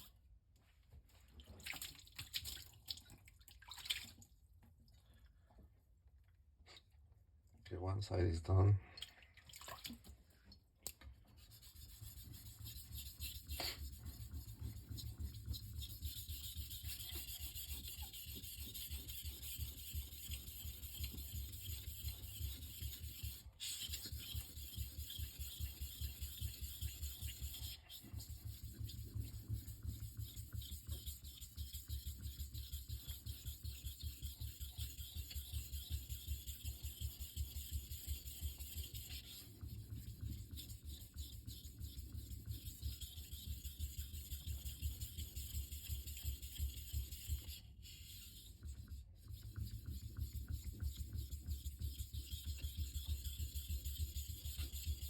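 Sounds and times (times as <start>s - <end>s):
knife scraping on whetstone: 11.6s - 39.2s.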